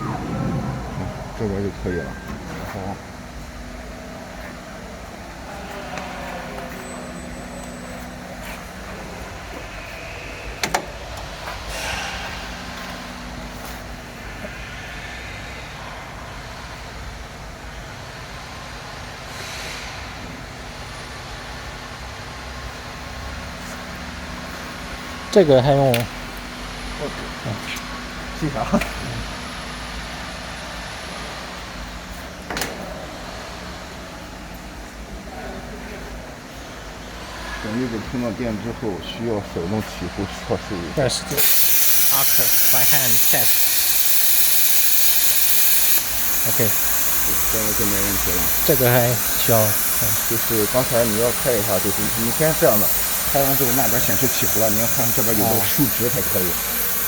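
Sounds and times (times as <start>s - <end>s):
machine hum: 0.0s - 18.5s.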